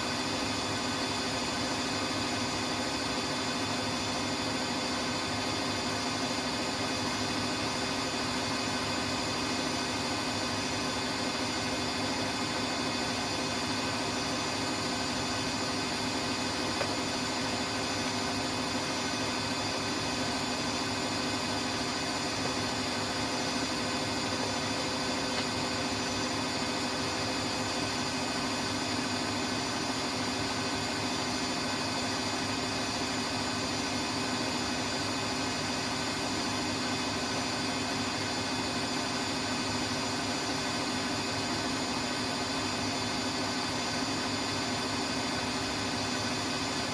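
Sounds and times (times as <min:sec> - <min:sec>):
washing machine hum and whine: 0:00.0 - 0:46.9.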